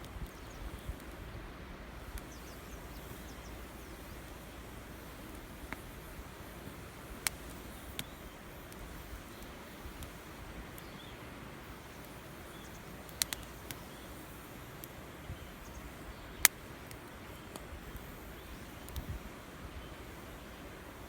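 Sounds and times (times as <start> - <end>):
steady outdoor hiss: 0.0 - 21.0
sharp clicks or snaps: 13.1 - 13.8.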